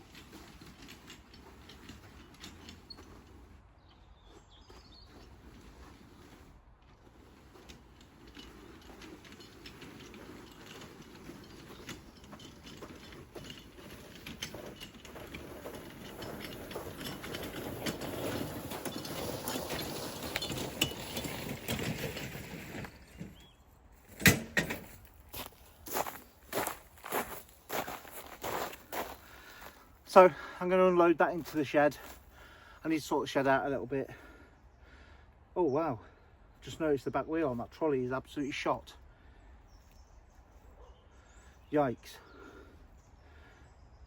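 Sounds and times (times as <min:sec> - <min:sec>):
trolley wheels rumbling and clattering: 0:00.0 - 0:34.5.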